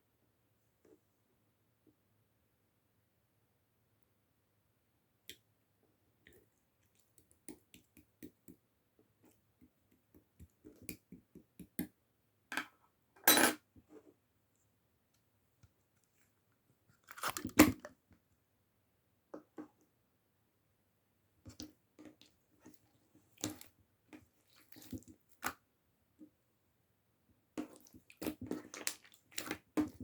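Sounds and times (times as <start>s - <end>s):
slime squelching: 21.5s - 25.6s, 27.5s - 30.0s.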